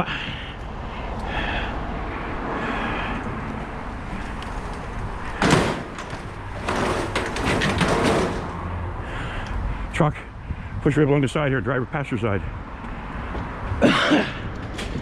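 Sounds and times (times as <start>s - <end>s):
vehicle low rumble: 0.0s - 13.8s
scrap clattering and scraping: 4.0s - 8.8s
scrap metal bang: 4.1s - 8.9s.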